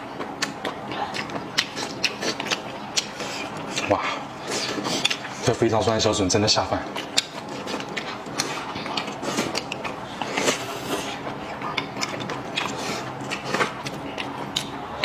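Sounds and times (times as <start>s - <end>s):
chewing: 0.0s - 5.6s, 6.6s - 15.0s.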